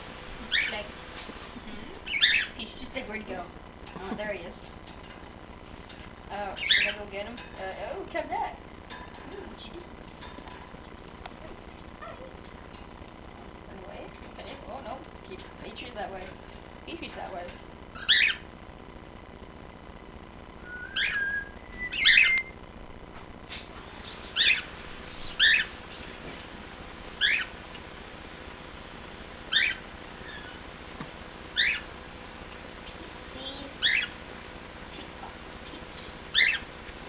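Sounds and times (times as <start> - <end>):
cockatiel chirping: 2.0 - 2.6, 6.6 - 7.0, 17.9 - 18.5, 20.7 - 22.6, 24.2 - 25.8, 27.2 - 27.5, 29.5 - 30.6, 31.5 - 31.9, 33.8 - 34.2, 36.3 - 36.7
cockatiel whistling: 20.6 - 22.6, 29.5 - 30.6, 31.6 - 31.9, 36.3 - 36.7.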